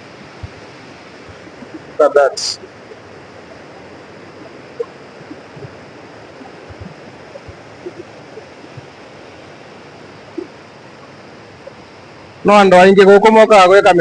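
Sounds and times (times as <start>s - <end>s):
river water rushing: 0.0s - 12.9s.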